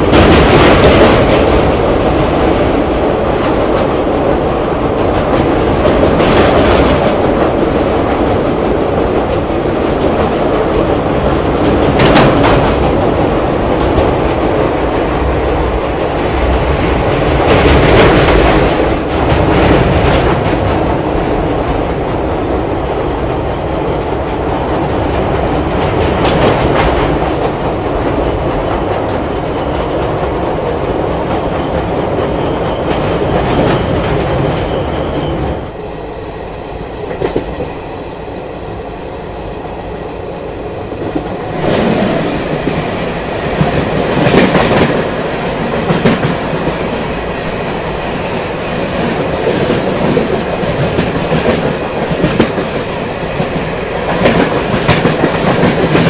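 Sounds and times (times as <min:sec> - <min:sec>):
train wheels clattering on rails: 0:00.0 - 0:35.8, 0:37.0 - 0:37.8, 0:40.0 - 0:56.0.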